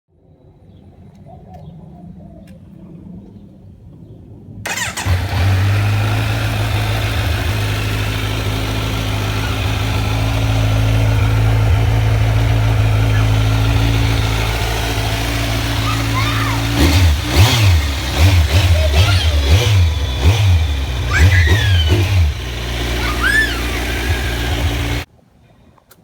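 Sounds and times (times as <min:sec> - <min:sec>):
motorcycle engine starting and idling: 0:04.7 - 0:25.1.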